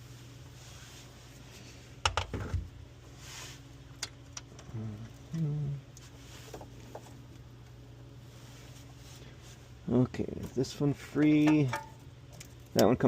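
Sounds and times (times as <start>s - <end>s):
steady low hum: 0.0s - 13.0s
person grunting: 4.7s - 5.8s
hand tools clicking and knocking: 11.2s - 12.0s.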